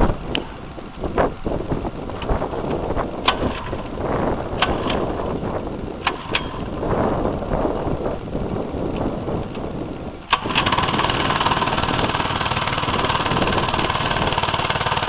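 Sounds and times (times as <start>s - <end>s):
wind buffeting microphone: 0.0s - 15.0s
sharp clicks: 6.0s - 6.7s.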